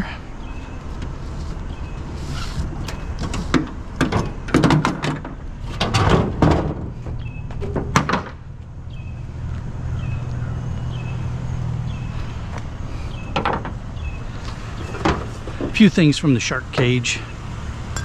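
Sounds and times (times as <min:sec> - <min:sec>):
scrap metal knocks and clatters: 0:02.4 - 0:03.8.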